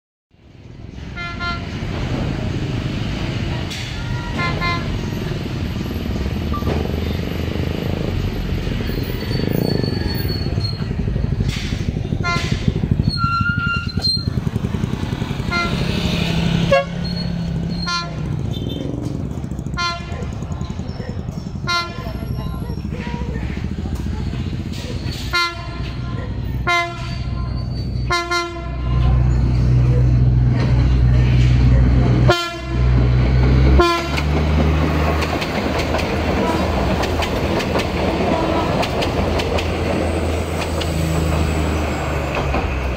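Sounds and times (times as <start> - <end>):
train passing rumble: 0.4 - 42.9
train horn toots: 1.1 - 1.8, 4.0 - 5.1, 12.2 - 13.9, 15.5 - 18.8, 19.7 - 20.4, 21.6 - 23.4, 25.2 - 26.0, 26.6 - 29.1, 32.2 - 33.0, 33.7 - 34.3.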